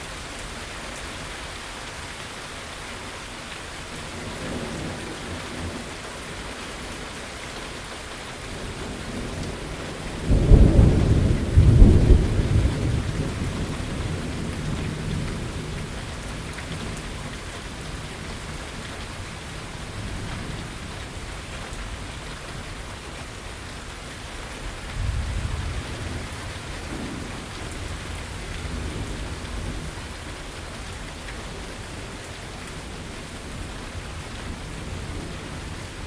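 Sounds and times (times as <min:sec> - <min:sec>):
steady rain falling: 0:00.0 - 0:36.0
thunder rumbling: 0:08.9 - 0:16.8, 0:24.9 - 0:30.3.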